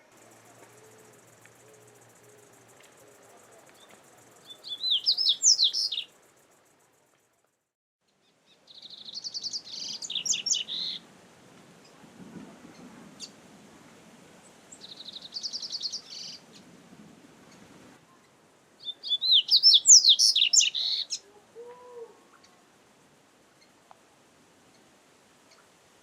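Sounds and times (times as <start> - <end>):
bird singing trills: 3.8 - 6.2, 8.7 - 11.0, 14.8 - 16.4, 18.8 - 21.2.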